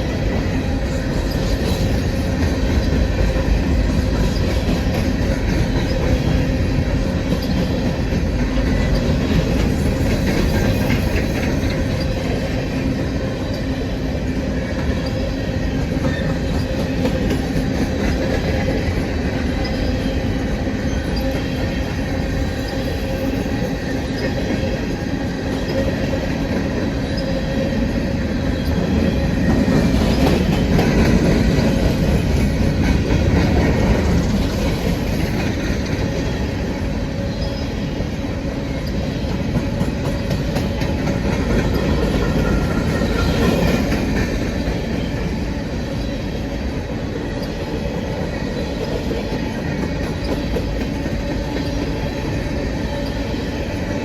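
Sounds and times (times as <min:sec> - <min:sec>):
railroad cars rolling past: 0:00.0 - 0:54.0
thin wheel squeal on rail: 0:14.9 - 0:27.9, 0:33.7 - 0:46.7.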